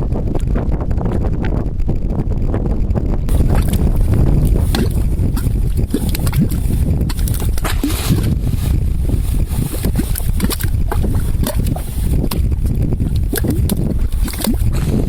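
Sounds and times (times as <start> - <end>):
steady low rumble: 0.0 - 15.0
mud pots bubbling and popping: 3.3 - 15.0.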